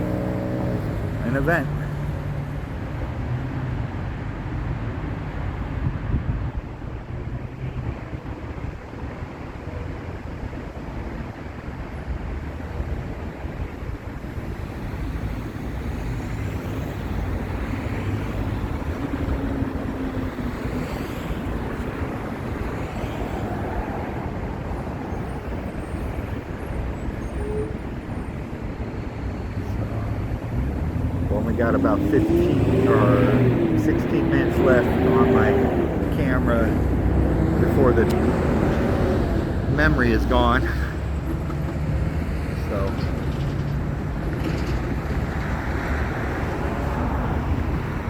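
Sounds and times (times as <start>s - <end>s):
vehicle passing by: 0.0s - 5.6s, 28.7s - 48.0s
road traffic passing: 0.0s - 48.0s.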